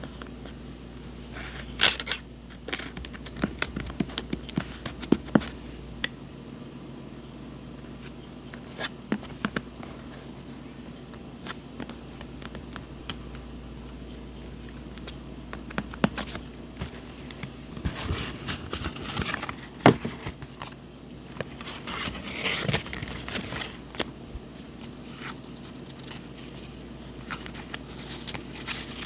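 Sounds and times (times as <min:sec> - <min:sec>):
paper rustling: 0:15.8 - 0:29.0.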